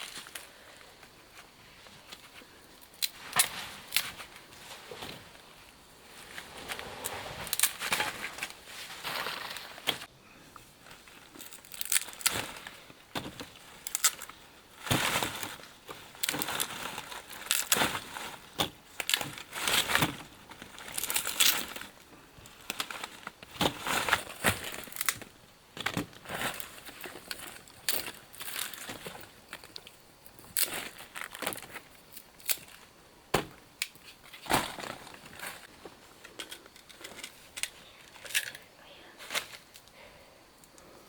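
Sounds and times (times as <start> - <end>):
dry leaves crunching and rustling: 7.0 - 10.1.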